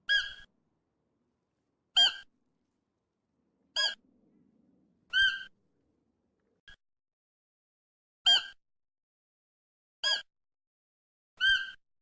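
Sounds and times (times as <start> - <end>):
high-pitched animal call: 0.0 - 0.5, 1.9 - 2.3, 3.7 - 4.0, 5.1 - 5.6, 11.4 - 11.8.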